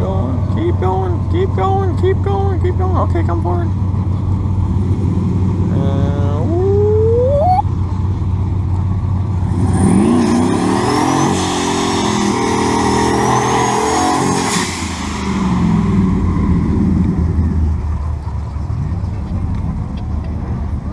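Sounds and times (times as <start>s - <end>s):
high turbo whine: 3.8s - 20.9s
pickup engine revving: 9.2s - 20.9s.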